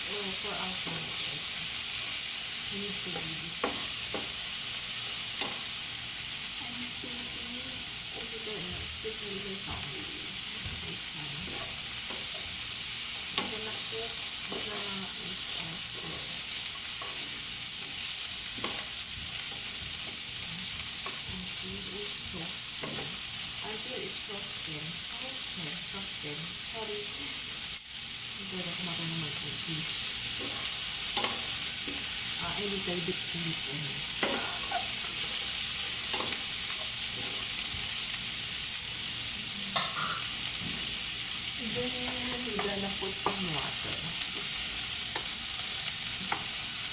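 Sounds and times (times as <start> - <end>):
food sizzling in a pan: 0.0 - 46.9
utensil clicking on pan: 5.0 - 5.8, 11.4 - 22.2, 22.8 - 23.2, 29.8 - 33.3, 34.0 - 37.7, 39.8 - 40.3, 42.0 - 46.8
utensil clicking against pan: 30.3 - 32.1.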